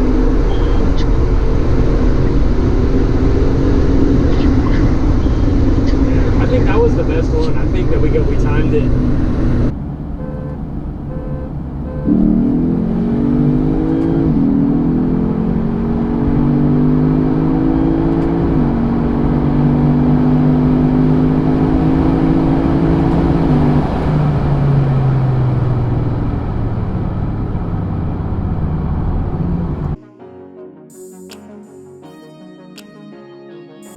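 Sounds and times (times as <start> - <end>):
car engine at full throttle: 0.0 - 30.0.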